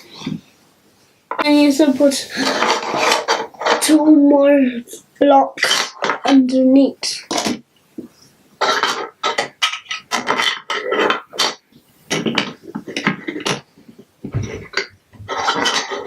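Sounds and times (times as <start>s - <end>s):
plastic bricks clattering: 5.6s - 6.4s, 8.6s - 16.0s.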